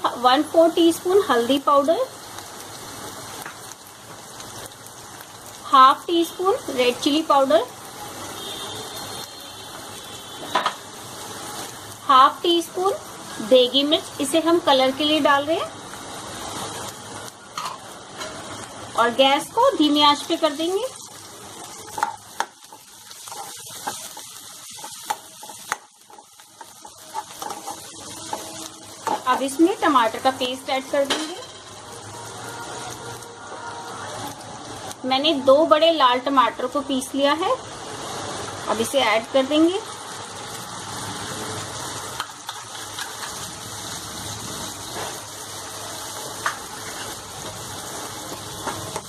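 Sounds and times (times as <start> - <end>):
onions sizzling in hot oil: 0.0 - 49.0
metal spoon stirring and scraping: 21.7 - 29.6, 42.3 - 43.5, 46.7 - 47.6.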